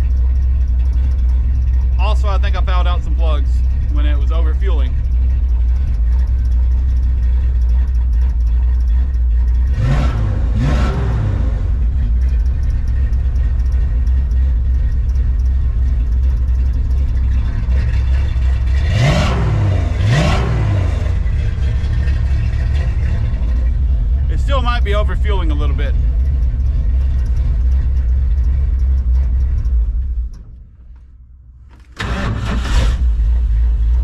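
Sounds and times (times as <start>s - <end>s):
pickup engine idling and revving: 0.0s - 34.0s.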